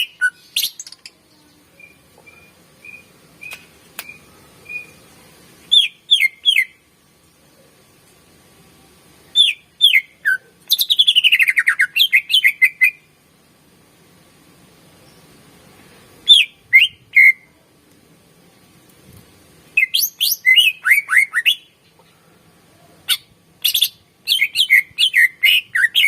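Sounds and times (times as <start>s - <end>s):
bird singing whistled notes: 0.0s - 5.0s, 5.7s - 6.8s, 9.3s - 13.1s, 16.2s - 17.5s, 19.8s - 21.8s, 23.1s - 26.0s.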